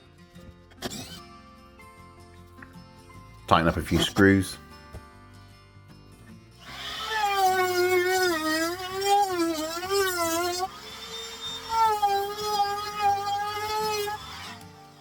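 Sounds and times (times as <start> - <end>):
drill motor whine: 6.6 - 15.0.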